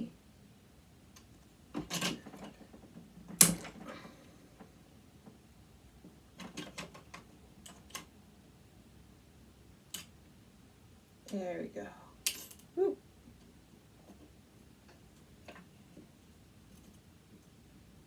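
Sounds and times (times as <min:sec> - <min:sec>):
metal parts clicking and knocking: 0:01.8 - 0:03.9.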